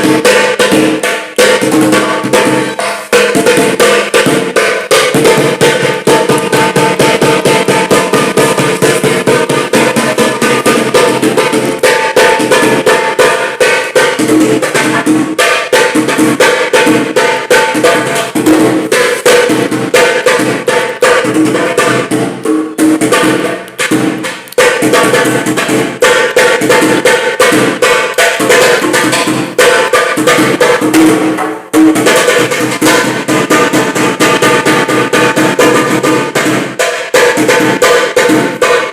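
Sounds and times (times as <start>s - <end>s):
funk music with fast drums: 0.0s - 21.0s.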